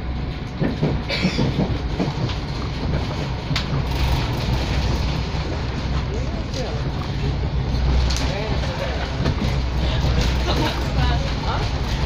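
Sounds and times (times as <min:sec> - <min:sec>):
train rumble inside carriage: 0:00.0 - 0:12.0
wheels clacking over rail joints: 0:00.2 - 0:12.0.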